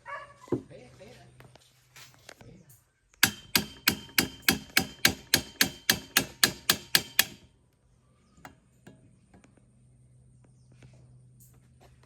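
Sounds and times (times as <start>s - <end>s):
rapid ringing hammer blows: 3.2s - 7.4s.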